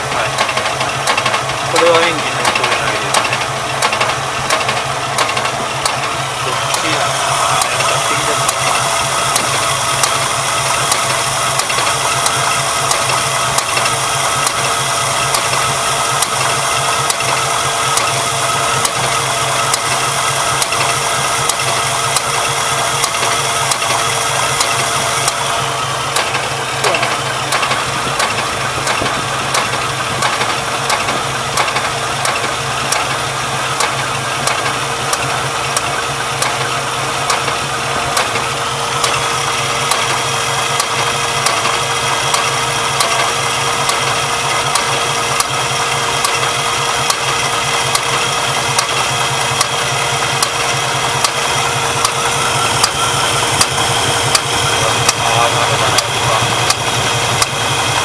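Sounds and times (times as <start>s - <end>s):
engine idling: 0.0s - 58.0s
sharp popping knock: 26.2s - 33.1s.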